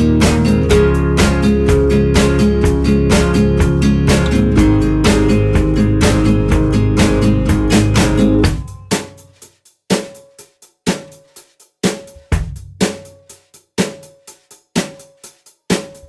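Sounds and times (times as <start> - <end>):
guitar: 0.0 - 8.9
drum kit playing steady beat: 0.0 - 16.0.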